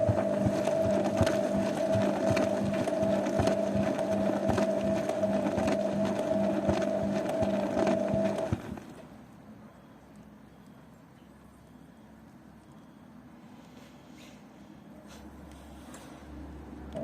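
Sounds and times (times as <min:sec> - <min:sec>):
washing machine motor hum: 0:00.0 - 0:09.4.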